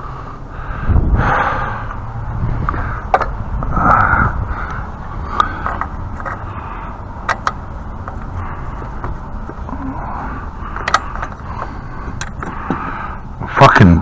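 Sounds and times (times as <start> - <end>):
steady low rumble: 0.0 - 14.0
hand tool metal clicks: 10.8 - 11.4.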